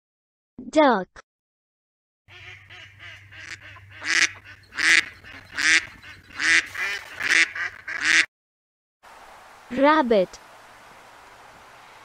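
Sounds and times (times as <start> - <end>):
mallard ducks quacking: 2.3 - 8.3.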